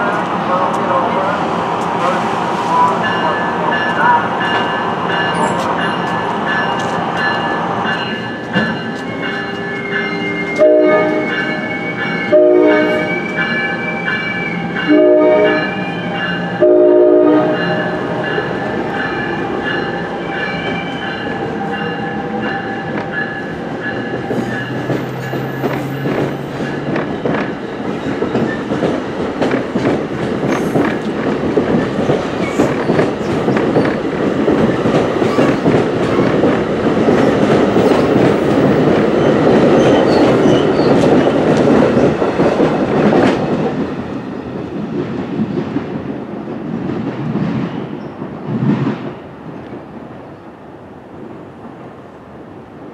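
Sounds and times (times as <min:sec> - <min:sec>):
train rumbling past: 0:00.0 - 0:52.9
train horn: 0:10.1 - 0:13.3, 0:14.8 - 0:15.9, 0:16.6 - 0:18.2.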